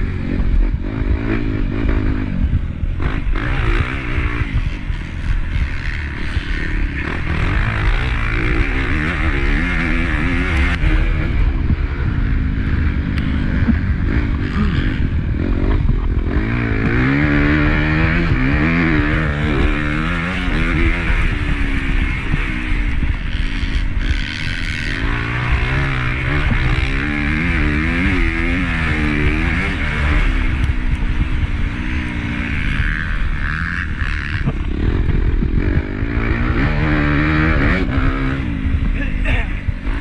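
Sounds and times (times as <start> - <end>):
motocross bike engine racing: 0.0 - 40.0.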